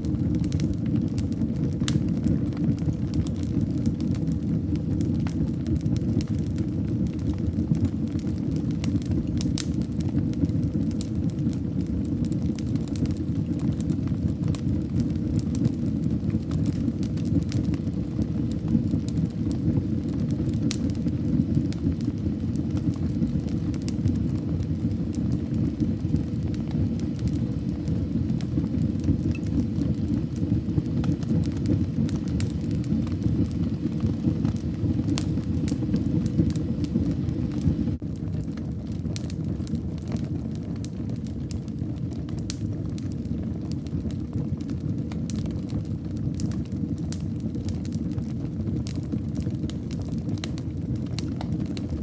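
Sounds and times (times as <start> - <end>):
fire crackling and popping: 0.0 - 52.0
low rumble of flames: 0.0 - 52.0.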